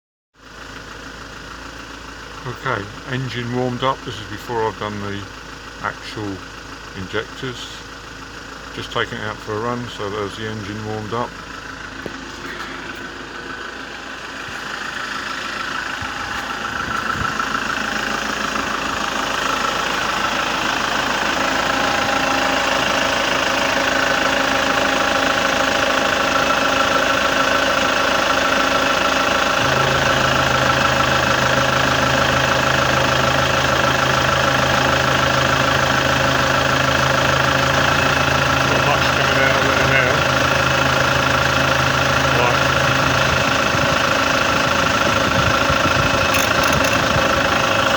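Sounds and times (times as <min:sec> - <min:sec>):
car engine running: 0:00.4 - 0:47.9
steady low hum: 0:28.9 - 0:36.1.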